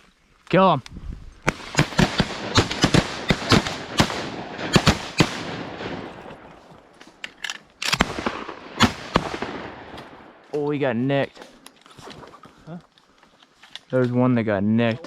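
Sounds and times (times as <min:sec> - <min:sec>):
shotguns firing: 0:01.5 - 0:07.2, 0:07.8 - 0:10.5.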